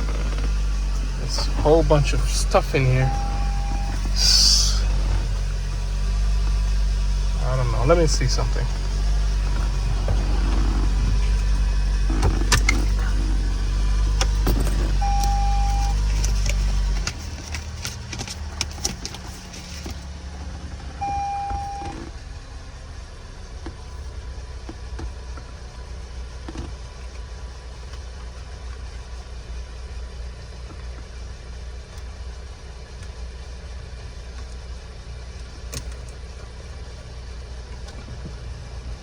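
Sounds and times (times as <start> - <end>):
car engine idling: 0.0 - 39.0
short electronic beeps: 3.0 - 4.8, 15.0 - 16.0, 21.0 - 21.9.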